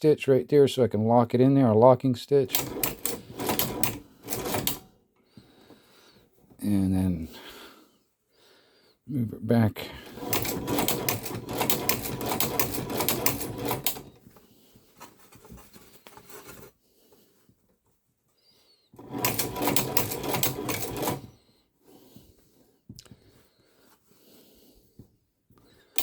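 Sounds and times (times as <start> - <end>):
sewing machine stitching: 2.5 - 5.0, 10.0 - 14.2, 19.0 - 21.3.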